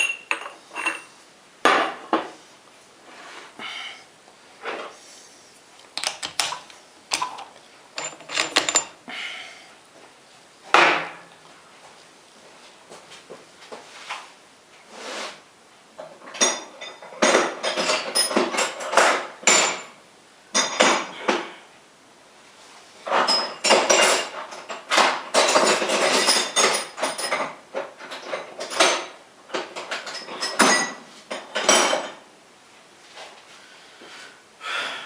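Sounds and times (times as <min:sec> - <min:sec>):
metal clattering and scraping on lathe: 0:08.0 - 0:08.9.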